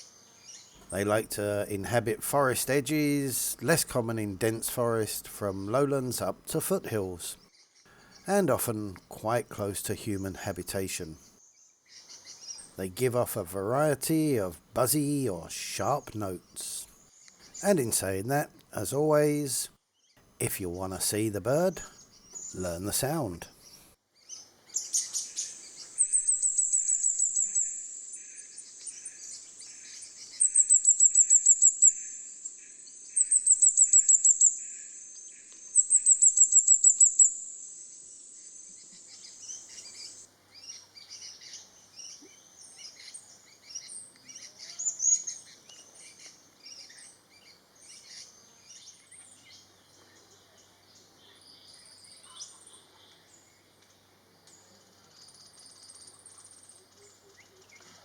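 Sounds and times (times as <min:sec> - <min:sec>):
high-pitched ticking bird trills: 0:24.7 - 0:28.8, 0:30.2 - 0:37.9.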